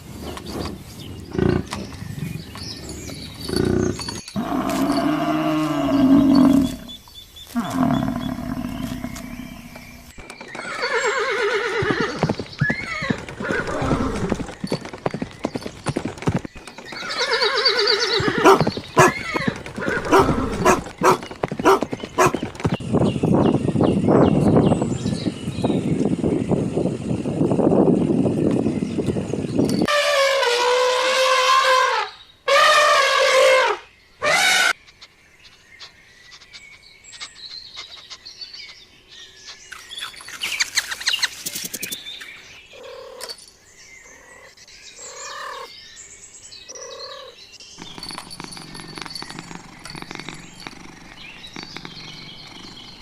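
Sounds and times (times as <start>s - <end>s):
animal wavering cries: 17.1s - 22.4s.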